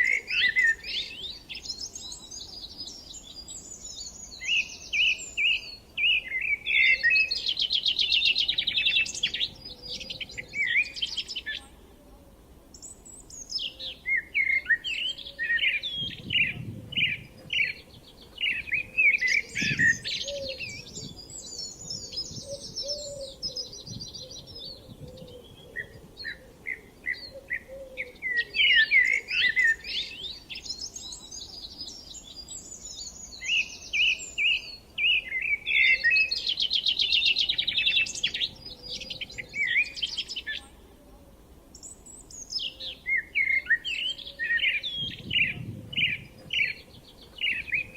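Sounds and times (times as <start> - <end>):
songbirds singing: 0.0 - 47.9.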